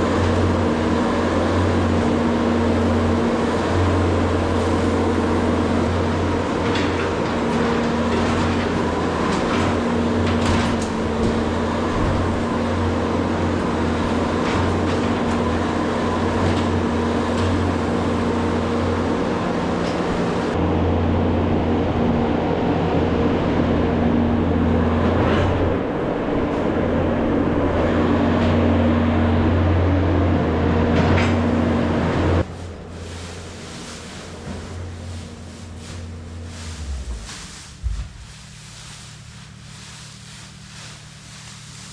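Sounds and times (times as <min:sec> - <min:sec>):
farm machine engine running: 0:00.0 - 0:41.9
knocks and clanks: 0:06.6 - 0:12.3.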